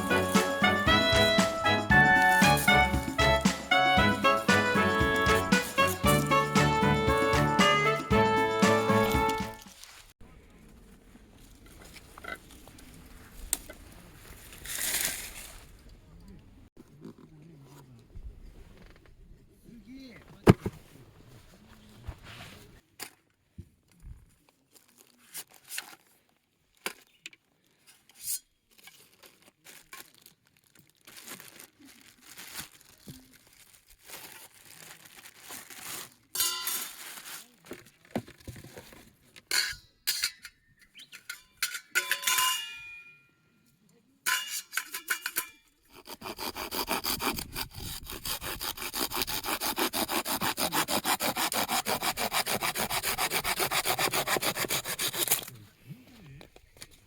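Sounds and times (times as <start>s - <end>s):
hand saw cutting wood: 0.0s - 9.6s, 45.9s - 55.6s.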